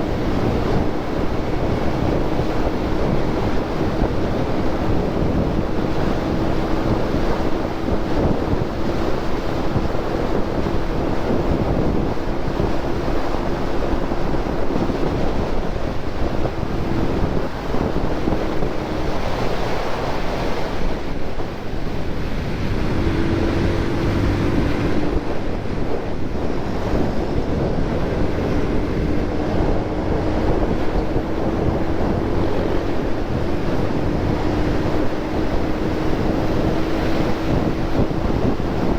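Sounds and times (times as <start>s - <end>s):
faint motorcycle engine drone: 0.0s - 38.9s
wind rushing over microphone: 0.0s - 38.9s.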